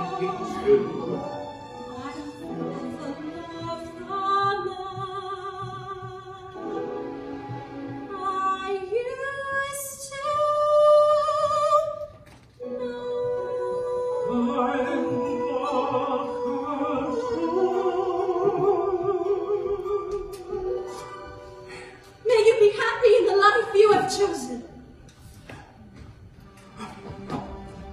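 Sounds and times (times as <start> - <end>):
musical accompaniment: 0.0 - 9.7, 12.6 - 23.3
woman singing with vibrato: 2.0 - 7.0, 8.0 - 20.9, 22.2 - 24.8.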